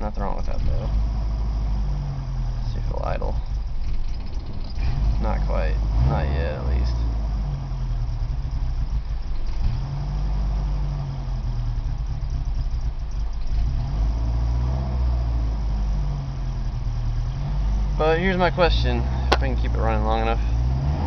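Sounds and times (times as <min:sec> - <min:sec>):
car engine idling unevenly: 0:00.0 - 0:21.0.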